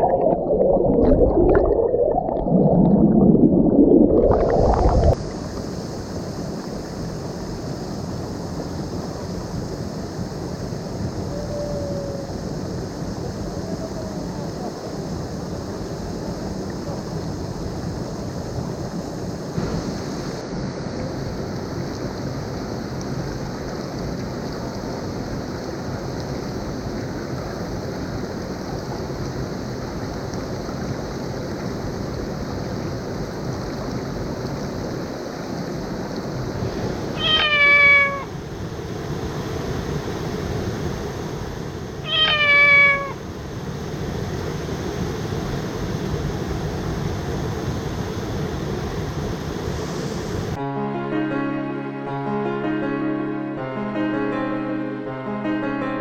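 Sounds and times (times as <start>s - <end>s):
waterfall rushing: 36.3s - 38.6s, 39.2s - 43.3s
short animal calls: 37.2s - 38.4s, 42.0s - 43.2s.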